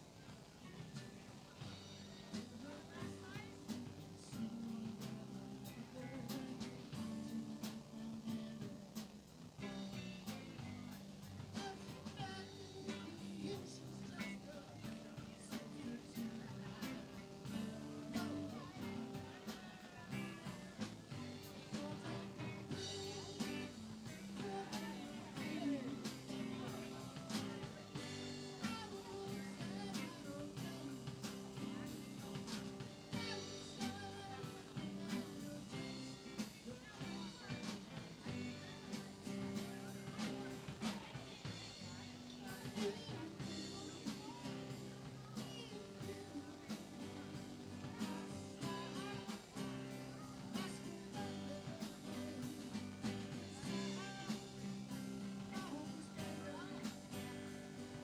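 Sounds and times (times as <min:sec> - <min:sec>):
electric guitar: 0:00.0 - 0:58.0
live rock and roll band: 0:00.0 - 0:58.0.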